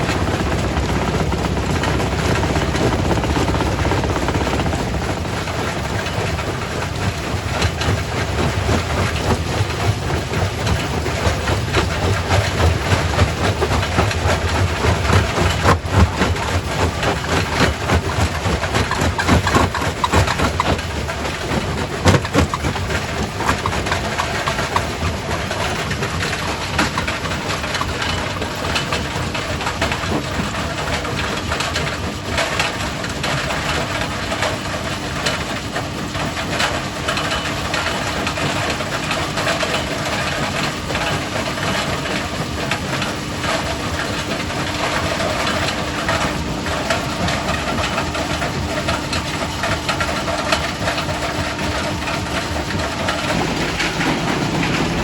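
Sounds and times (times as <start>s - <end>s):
rock crusher machine hum: 0.0s - 55.0s
rock knocking and cracking: 14.8s - 24.0s.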